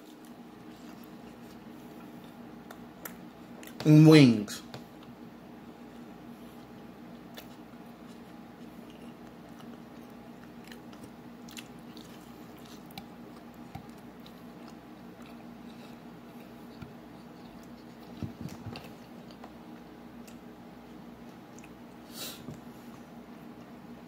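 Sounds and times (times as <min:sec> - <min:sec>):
chewing crunchy food: 0:00.0 - 0:03.8, 0:05.8 - 0:24.0
steady low hum: 0:00.0 - 0:24.0.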